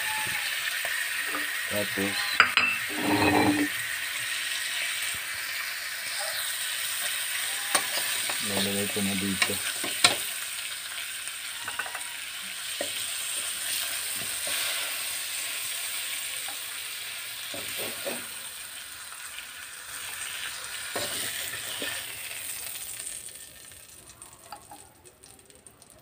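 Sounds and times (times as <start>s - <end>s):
meat sizzling in oil: 0.0s - 26.0s
clinks against the pan: 2.2s - 3.7s, 11.6s - 12.2s.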